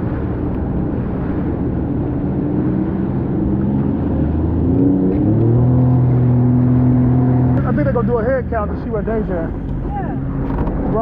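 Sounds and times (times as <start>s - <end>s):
jet ski engine revving: 0.0s - 11.0s
water noise: 0.0s - 11.0s
wind noise: 9.1s - 11.0s.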